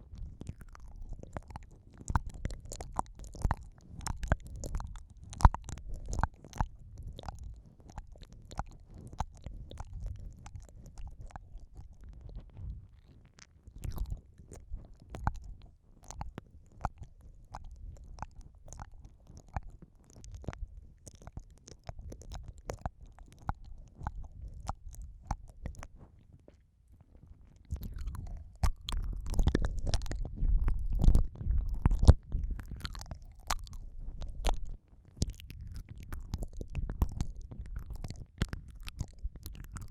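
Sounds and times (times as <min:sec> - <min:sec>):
low rumble of mouth contact: 0:00.0 - 0:39.9
moist mouth clicks: 0:00.0 - 0:39.9
wet mouth sounds: 0:00.0 - 0:39.9.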